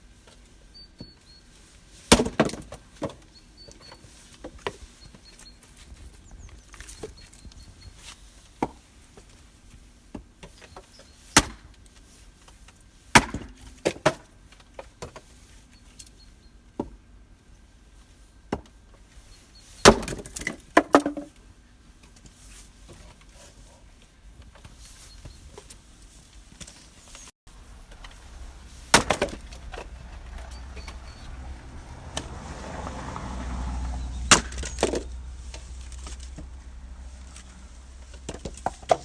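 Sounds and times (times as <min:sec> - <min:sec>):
wooden knocks and clatters: 0:19.9 - 0:21.4.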